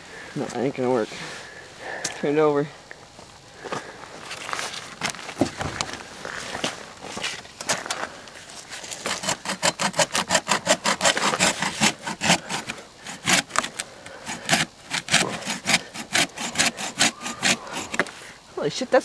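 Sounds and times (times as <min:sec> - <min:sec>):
hand saw cutting log: 0:08.9 - 0:18.2.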